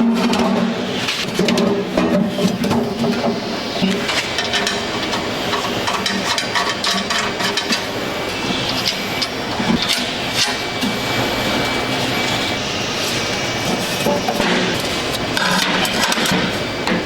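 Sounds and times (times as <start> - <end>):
sharp clicks and metal knocks: 0.2 - 7.9.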